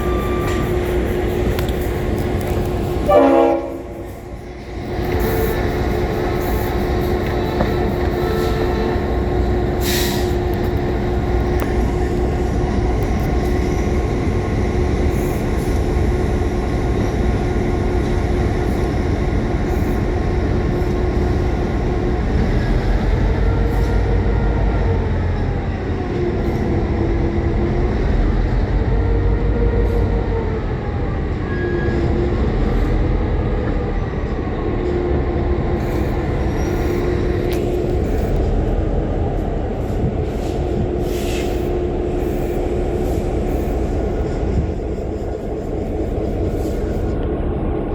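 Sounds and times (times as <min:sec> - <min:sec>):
train rumbling: 0:00.0 - 0:47.9.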